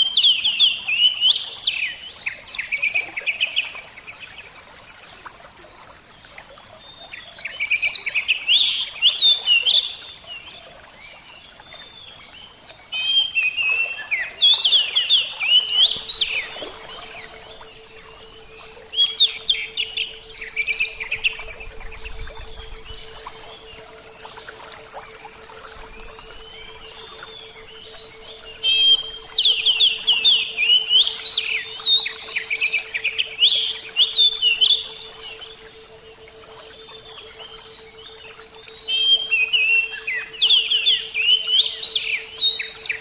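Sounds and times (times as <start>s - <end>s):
rushing water: 0.0s - 43.0s
bird whistling song: 12.9s - 24.6s, 25.4s - 35.8s, 36.6s - 43.0s
faint low hum: 15.3s - 42.5s.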